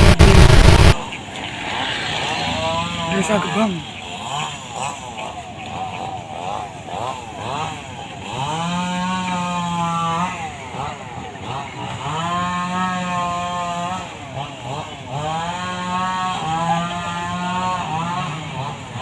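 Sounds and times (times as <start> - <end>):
chainsaw revving: 7.4 - 19.0.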